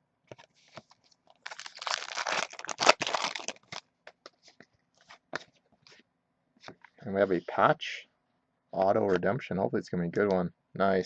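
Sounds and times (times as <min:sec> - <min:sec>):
plastic packaging crinkling: 0:00.8 - 0:03.9.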